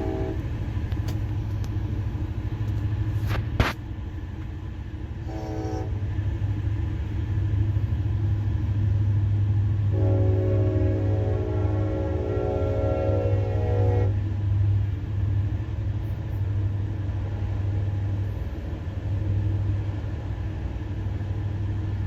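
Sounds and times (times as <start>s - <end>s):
locomotive horn chord: 0.0s - 0.5s, 5.2s - 6.0s, 9.9s - 14.2s
truck road and engine drone: 0.0s - 10.0s, 12.7s - 22.0s.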